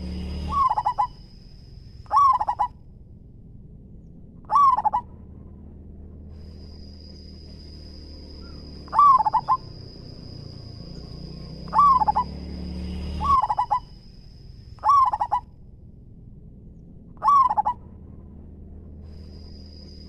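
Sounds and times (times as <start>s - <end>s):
dove cooing: 0.0s - 1.2s, 2.1s - 2.8s, 4.4s - 5.1s, 8.4s - 10.3s, 10.9s - 12.4s, 13.2s - 13.9s, 14.8s - 15.4s, 17.2s - 17.8s.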